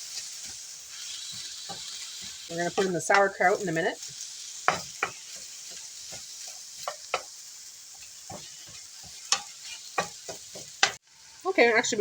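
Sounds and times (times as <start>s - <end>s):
utensil scraping a pan: 0.0s - 11.0s
food sizzling in a frying pan: 0.0s - 12.0s.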